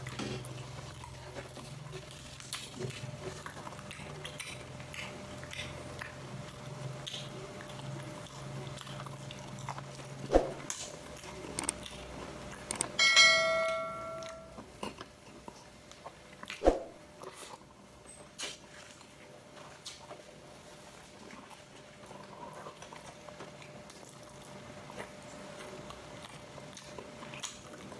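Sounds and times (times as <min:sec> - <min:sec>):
chewing: 0:00.0 - 0:13.0, 0:14.6 - 0:16.6, 0:17.2 - 0:27.9
bright ringing clink: 0:13.0 - 0:14.6.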